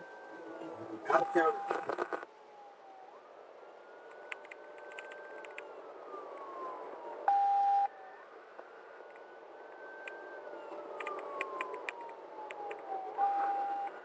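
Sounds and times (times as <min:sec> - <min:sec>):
police siren wailing: 0:00.0 - 0:14.0
loud steady beep: 0:07.3 - 0:07.9.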